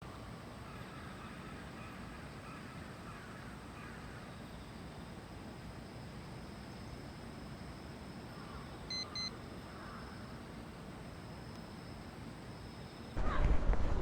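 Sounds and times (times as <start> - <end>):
low background hum: 0.0 - 14.0
short electronic beeps: 8.9 - 9.3.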